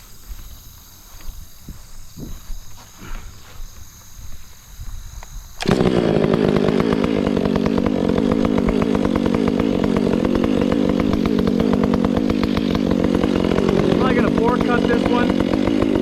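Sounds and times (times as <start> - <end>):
chainsaw running: 5.5 - 16.0.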